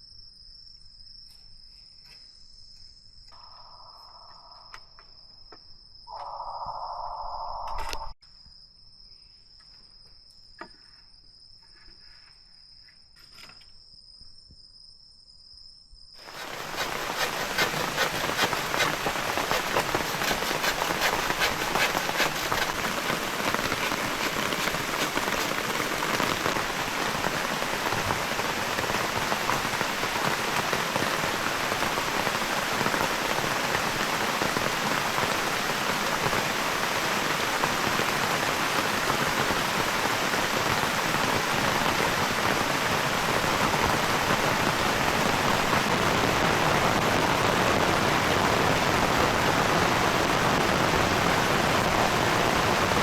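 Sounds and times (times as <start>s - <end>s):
crickets trilling: 0.0s - 45.9s
heavy rain pouring: 16.2s - 53.0s.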